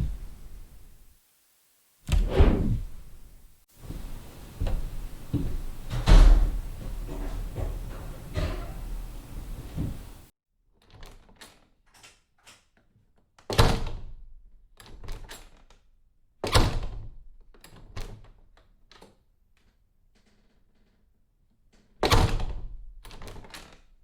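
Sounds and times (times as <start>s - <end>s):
door closing: 2.1s - 3.2s, 3.8s - 10.3s
door slamming: 2.1s - 3.2s, 3.8s - 10.2s.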